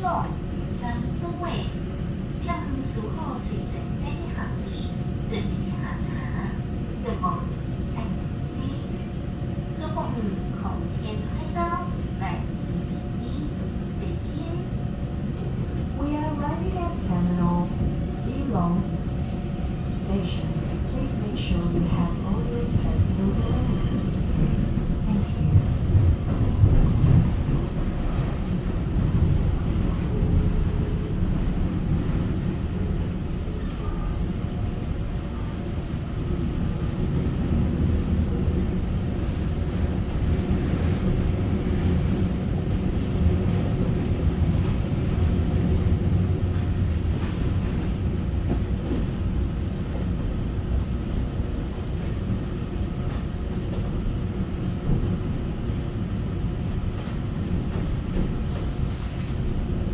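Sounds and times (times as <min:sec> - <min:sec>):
train wheels rumbling on rails: 0:13.0 - 0:59.9.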